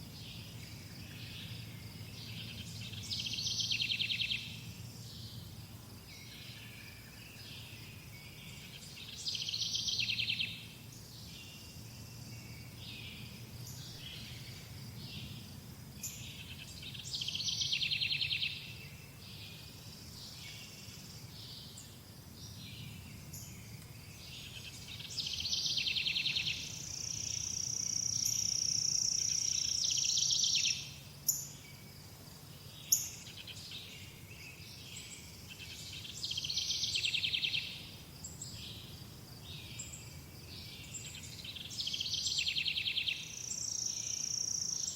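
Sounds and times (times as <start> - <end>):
songbirds trilling: 0.0 - 44.9.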